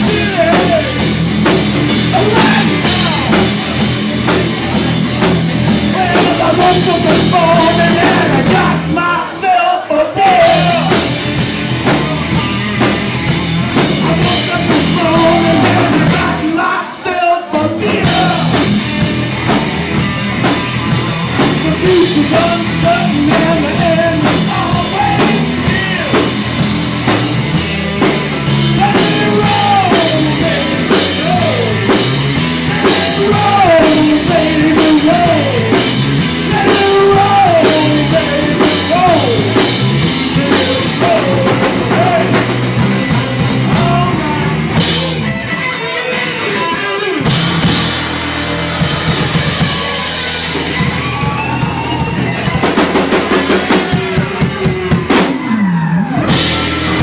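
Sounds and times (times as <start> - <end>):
drum fill: 0.0 - 8.8
live rock band playing: 0.0 - 57.0.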